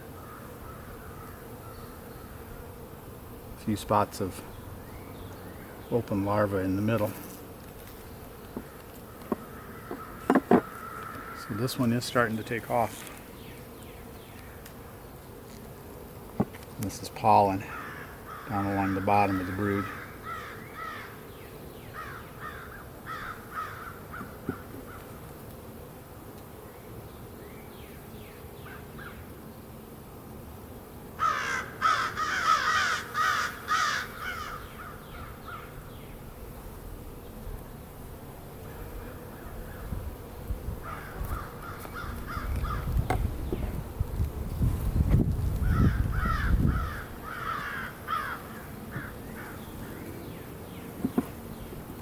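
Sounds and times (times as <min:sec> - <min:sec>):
crows cawing: 0:00.0 - 0:02.8, 0:03.7 - 0:13.5, 0:17.2 - 0:25.2, 0:28.6 - 0:29.3, 0:31.1 - 0:36.1, 0:40.7 - 0:43.8, 0:45.4 - 0:51.3.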